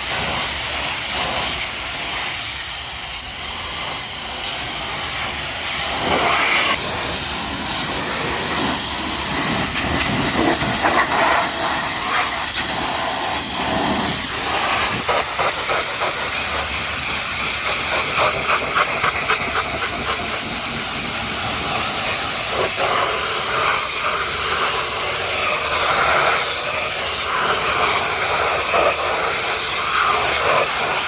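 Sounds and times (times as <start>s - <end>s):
pressure washer spraying: 0.0s - 31.0s.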